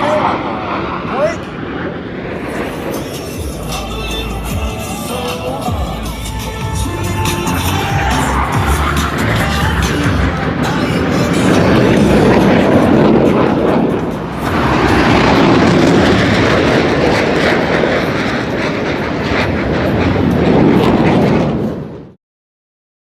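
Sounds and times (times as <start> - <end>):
aircraft engine noise: 0.0 - 22.1.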